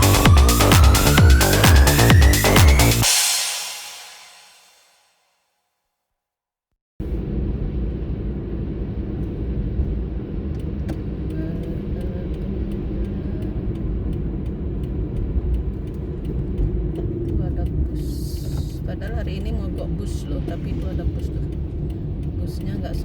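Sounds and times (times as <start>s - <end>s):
car engine and tyre rumble: 7.0s - 23.0s
light ticks: 10.5s - 23.0s.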